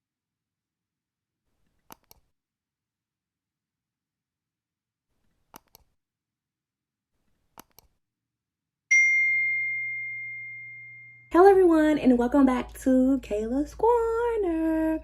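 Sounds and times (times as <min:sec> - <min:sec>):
high-pitched ding: 0:08.9 - 0:11.4.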